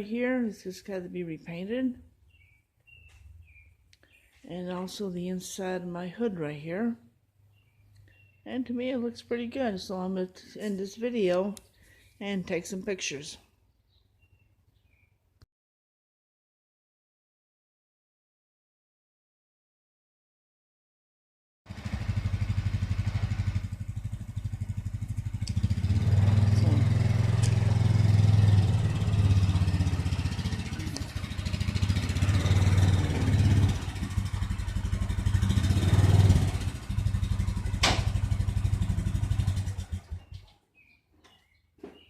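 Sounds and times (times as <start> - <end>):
vehicle engine running: 21.7 - 40.5.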